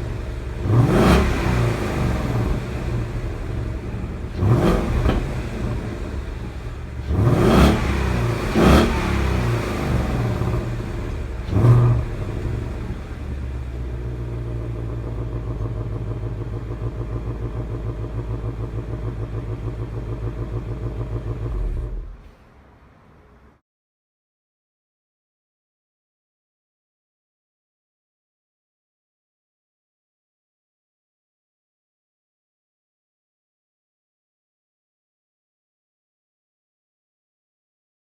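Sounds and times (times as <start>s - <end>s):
car engine revving and idling: 0.0s - 23.5s.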